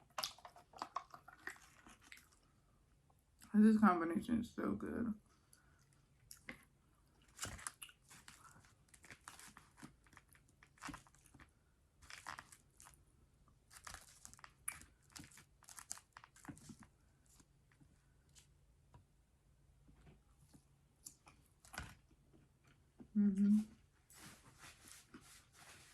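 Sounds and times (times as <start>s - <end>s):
chewing with crunches: 0.0s - 2.5s, 5.5s - 13.0s, 13.7s - 17.5s.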